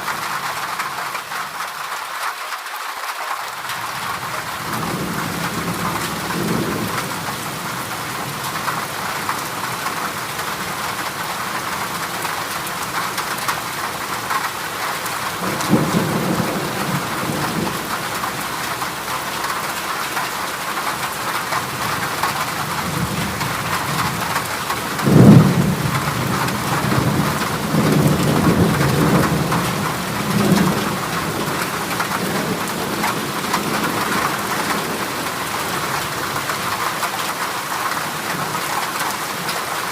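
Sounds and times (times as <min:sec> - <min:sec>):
heavy rain on a metal roof: 0:00.0 - 0:39.9
thunder rumbling: 0:15.3 - 0:20.2, 0:21.4 - 0:36.8.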